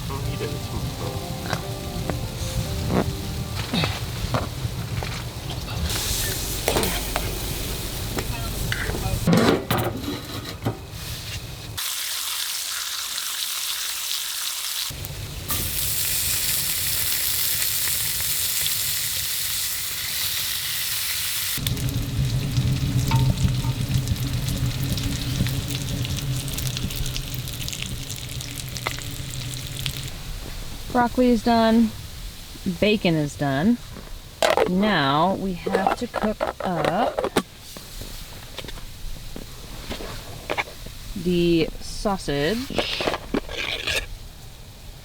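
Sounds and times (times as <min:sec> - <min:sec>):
food sizzling in a pan: 0:11.0 - 0:31.0.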